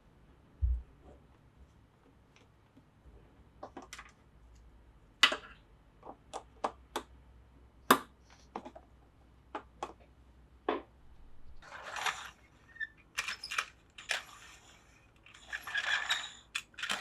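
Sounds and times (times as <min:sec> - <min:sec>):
plastic toy track clicking: 0:11.6 - 0:17.0.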